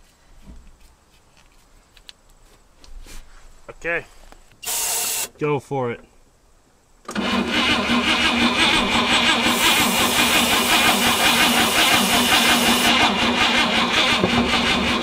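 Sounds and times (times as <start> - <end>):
spray hissing: 4.6 - 5.3, 9.4 - 12.9
starter cranking engine: 7.1 - 15.0.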